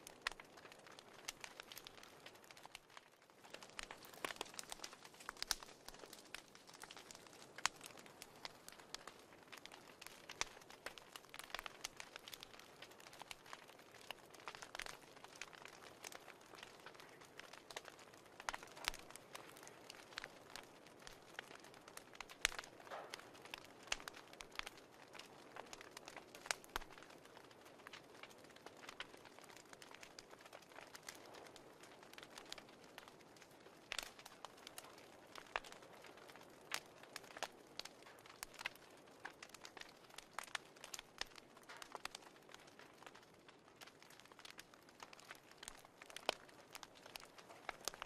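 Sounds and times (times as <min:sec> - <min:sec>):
fire crackling and popping: 0:00.0 - 0:48.0.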